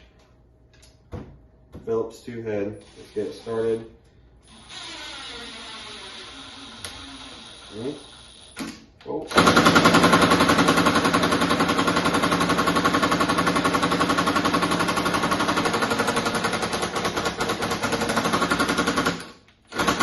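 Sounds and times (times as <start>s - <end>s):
impact driver rattling: 9.3s - 20.0s.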